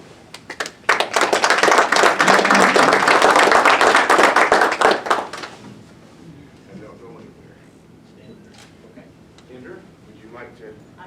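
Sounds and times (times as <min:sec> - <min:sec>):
audience applauding: 0:00.3 - 0:05.6.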